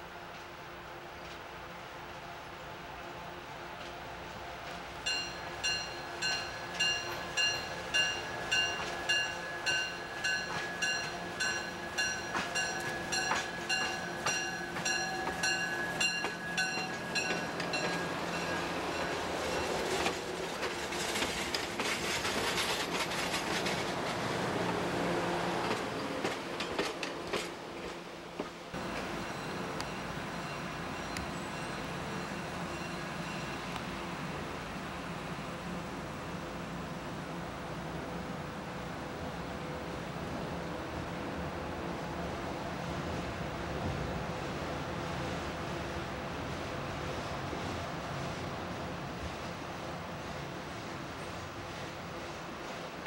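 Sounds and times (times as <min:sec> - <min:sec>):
diesel train engine: 0:00.0 - 0:53.0
train wheels on rail: 0:00.0 - 0:53.0.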